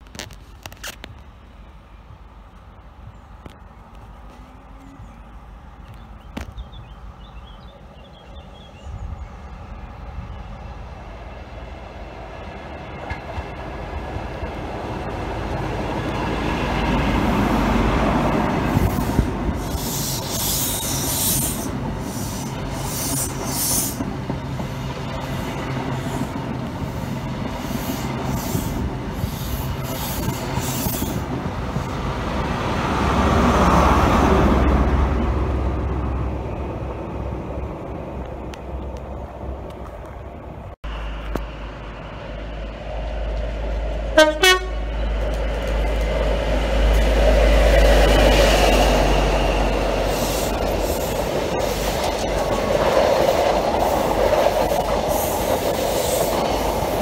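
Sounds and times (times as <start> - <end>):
diesel train passing at speed: 0.7 - 57.0
train wheel clicks: 45.1 - 48.8.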